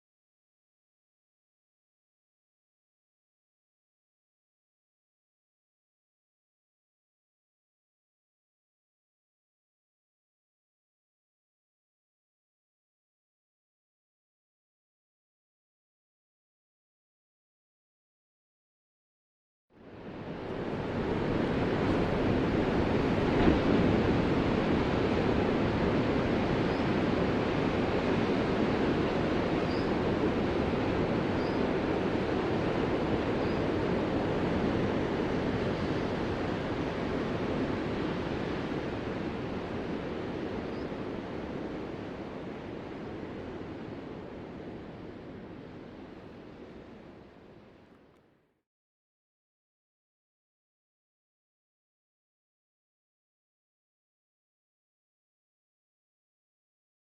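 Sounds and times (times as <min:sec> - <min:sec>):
ocean waves breaking: 0:19.9 - 0:47.0.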